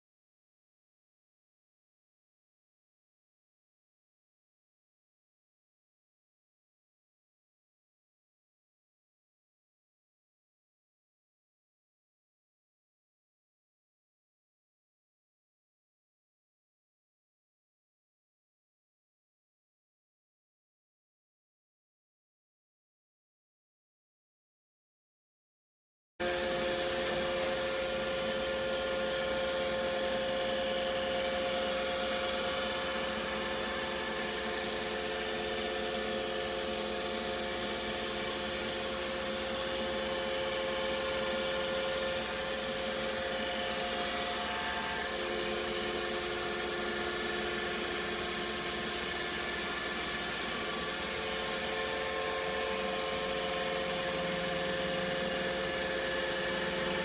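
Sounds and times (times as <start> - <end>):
robot vacuum whirring: 30.2 - 57.0.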